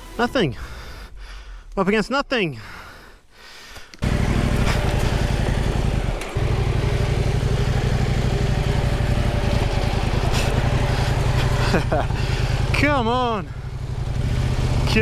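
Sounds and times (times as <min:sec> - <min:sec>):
motorcycle engine running: 0:04.0 - 0:15.0.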